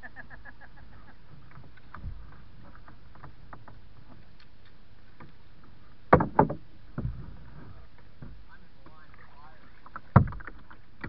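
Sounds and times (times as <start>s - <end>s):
steady water noise: 0.0s - 11.0s
paddle splashes and drips: 1.2s - 11.0s
dull knock: 6.1s - 7.2s.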